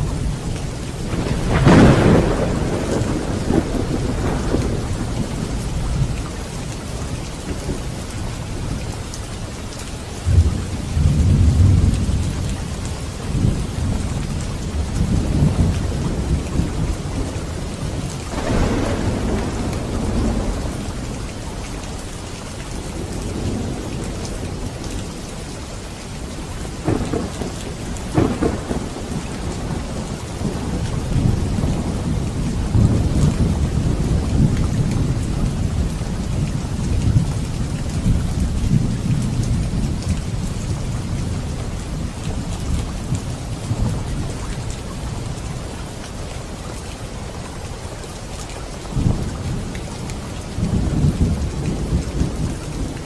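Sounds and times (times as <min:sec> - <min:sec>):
heavy rain: 0:00.0 - 0:53.0
thunder: 0:01.1 - 0:06.2, 0:10.2 - 0:12.5, 0:14.8 - 0:21.2, 0:26.8 - 0:41.6.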